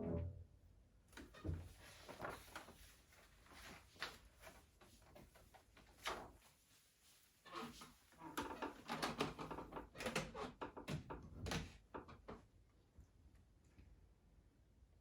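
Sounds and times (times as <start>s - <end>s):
faint handling rustles: 1.2s - 8.2s.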